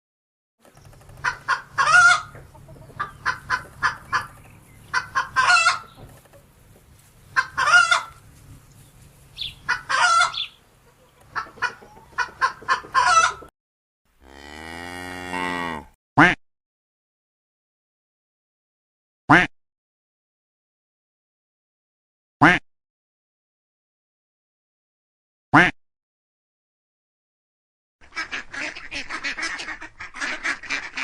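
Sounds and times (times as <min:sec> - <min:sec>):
chickens clucking and squawking: 0:00.7 - 0:13.5, 0:28.1 - 0:31.0
cow mooing: 0:14.2 - 0:16.0.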